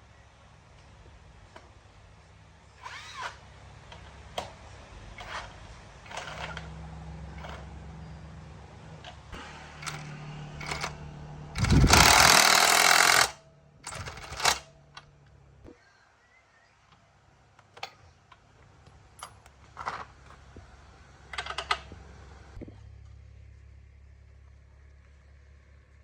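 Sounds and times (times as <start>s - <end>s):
tools clicking on metal parts: 11.6s - 14.6s, 19.2s - 20.4s
pneumatic impact wrench hammering: 11.6s - 14.7s.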